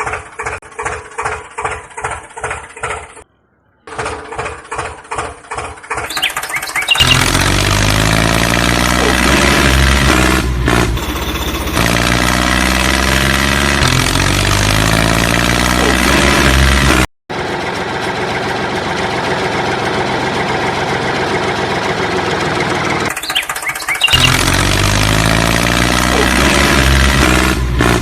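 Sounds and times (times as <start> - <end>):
engine-like motor chugging: 0.0 - 3.2, 3.9 - 28.0.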